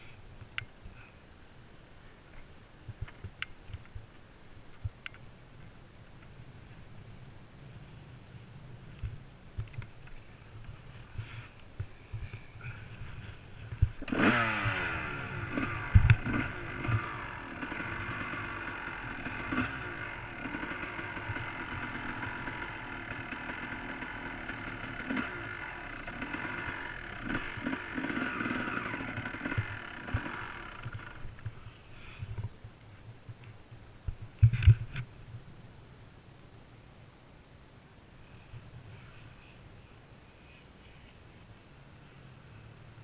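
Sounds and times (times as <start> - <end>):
motocross bike engine revving: 14.0 - 31.3.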